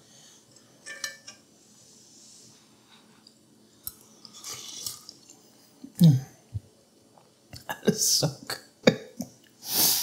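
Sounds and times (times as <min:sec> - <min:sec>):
person chewing quietly: 0:02.9 - 0:07.7.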